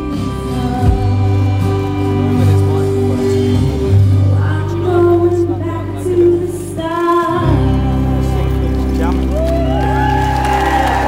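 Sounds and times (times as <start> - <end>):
woman singing: 0.0 - 8.8
instrumental backing music: 0.0 - 11.0.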